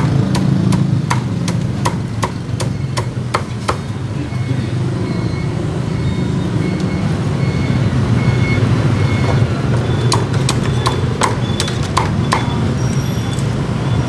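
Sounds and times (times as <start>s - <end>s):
cleaver chopping on wooden block: 0.0s - 3.9s, 10.0s - 12.6s.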